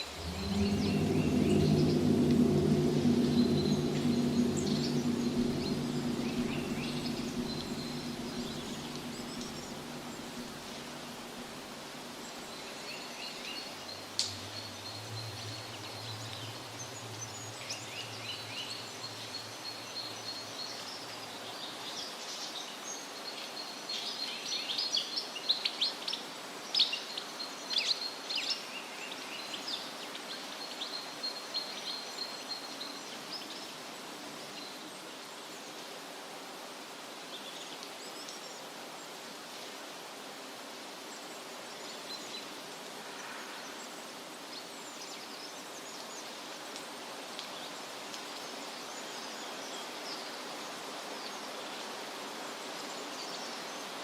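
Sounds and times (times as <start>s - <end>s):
low droning rumble: 0.0s - 12.5s, 14.1s - 20.2s
steady background hush: 0.0s - 12.5s.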